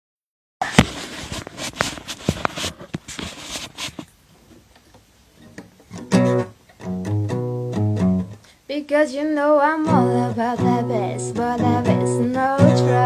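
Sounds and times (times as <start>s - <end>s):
acoustic guitar strumming: 5.4s - 8.4s, 9.8s - 13.0s.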